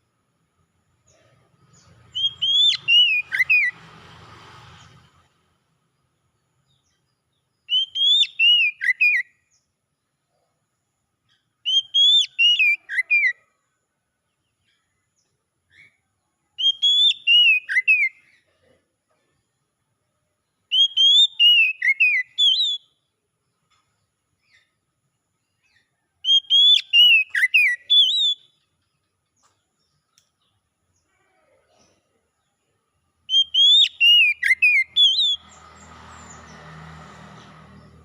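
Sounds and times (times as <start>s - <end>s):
bird singing whistled notes: 1.7s - 3.8s, 6.6s - 9.7s, 11.6s - 13.4s, 16.6s - 18.4s, 20.4s - 23.1s, 25.4s - 28.8s, 33.2s - 36.7s.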